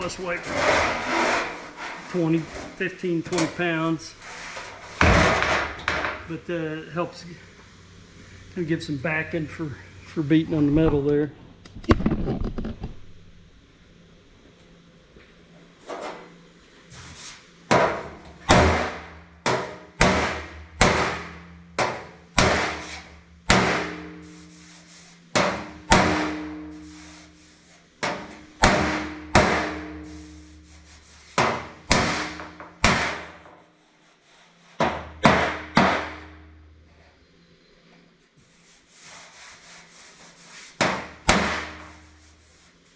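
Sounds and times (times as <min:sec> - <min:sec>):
hammer striking sheet steel: 0:17.7 - 0:33.6, 0:34.8 - 0:36.6, 0:40.7 - 0:42.4.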